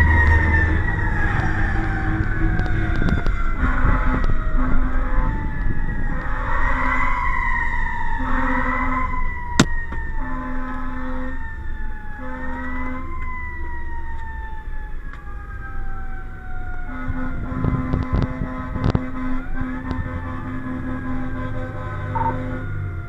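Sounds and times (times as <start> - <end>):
fire truck siren wailing: 0.0 - 23.0
road rumble: 0.0 - 23.0
short low horn blasts: 3.6 - 5.5, 8.2 - 9.2, 10.1 - 11.5, 12.2 - 13.1, 16.9 - 22.8.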